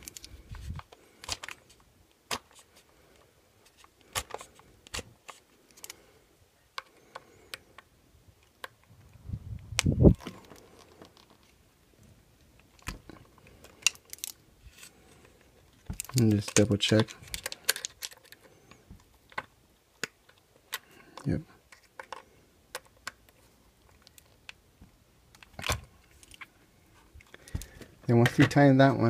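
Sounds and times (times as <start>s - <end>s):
screwdriver and plastic parts clicking: 0.0s - 6.0s, 12.6s - 24.6s, 25.3s - 26.5s, 27.2s - 28.6s.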